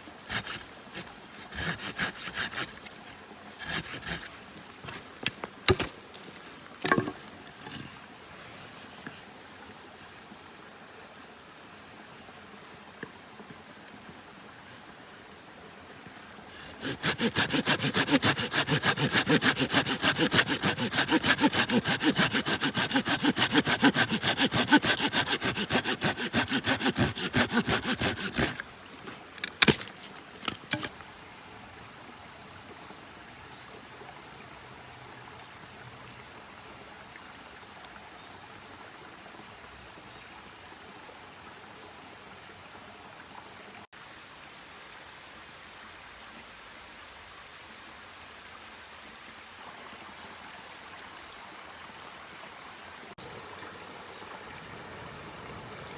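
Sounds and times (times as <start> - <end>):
faint steady hiss: 0.0 - 16.8
hand saw cutting wood: 0.3 - 8.0, 16.6 - 30.9.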